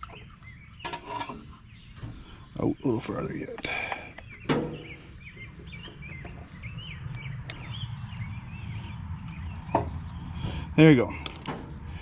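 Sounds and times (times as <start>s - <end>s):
small birds chirping: 0.0s - 12.0s
steady low rumble: 4.2s - 12.0s.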